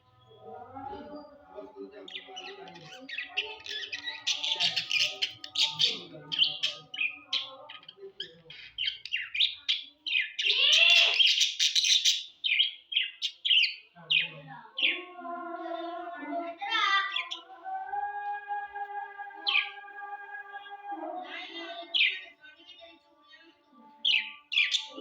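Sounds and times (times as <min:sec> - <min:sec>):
budgerigars chirping and warbling: 0:00.1 - 0:15.1, 0:16.6 - 0:17.5, 0:19.4 - 0:19.9, 0:21.2 - 0:23.0, 0:24.0 - 0:25.0
background music with held tones: 0:15.0 - 0:25.0.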